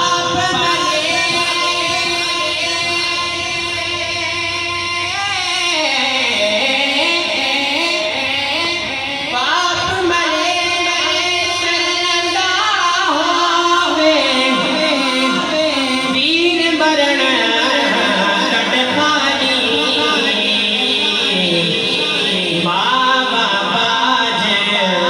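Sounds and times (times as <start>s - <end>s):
man singing devotional melody: 0.0s - 25.0s.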